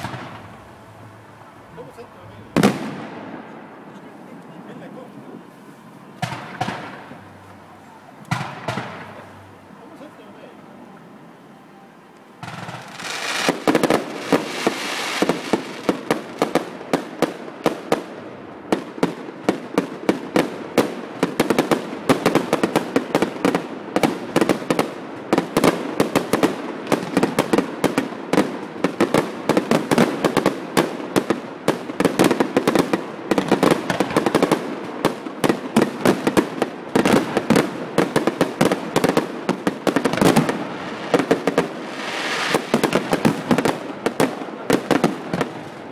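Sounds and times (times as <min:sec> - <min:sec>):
fireworks bangs: 0:00.0 - 0:10.4, 0:12.4 - 0:45.9
fireworks hiss and crackle: 0:00.0 - 0:11.4, 0:12.1 - 0:45.9.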